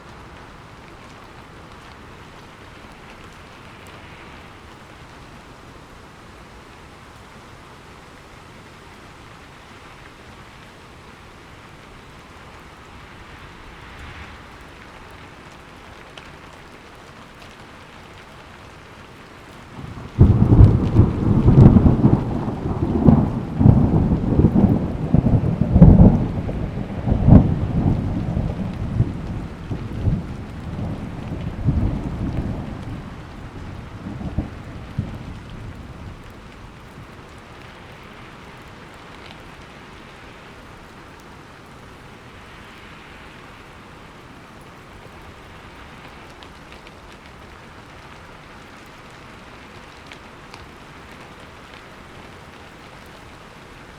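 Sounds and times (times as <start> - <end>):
steady rain: 0.0 - 53.9
thunder cracking and rolling: 19.8 - 36.3.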